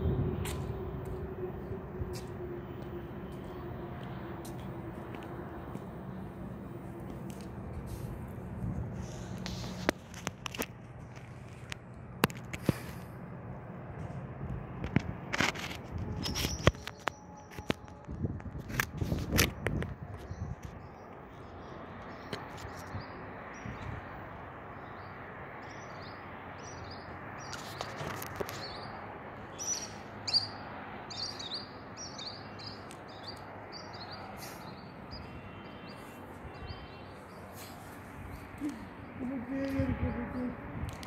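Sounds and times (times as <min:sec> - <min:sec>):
small birds chirping: 0:20.2 - 0:39.7.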